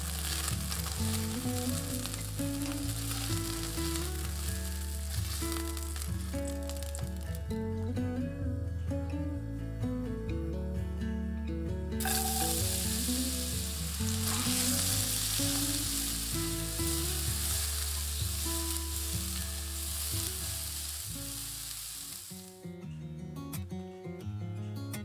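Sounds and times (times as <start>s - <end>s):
spatula stirring in pan: 0.0s - 6.9s, 12.0s - 22.4s
potatoes sizzling in hot oil: 0.0s - 7.5s, 12.0s - 22.6s.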